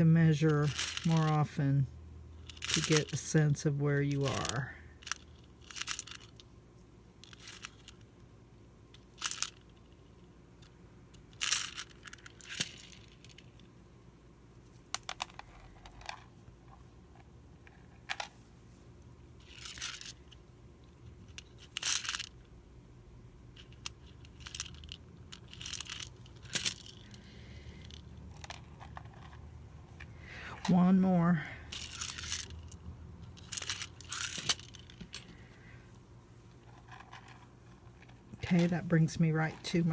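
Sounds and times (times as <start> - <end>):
beads clicking: 0.5 - 1.4, 4.2 - 6.5, 19.4 - 22.4, 23.6 - 39.9
thread and paper rustling: 25.5 - 39.9.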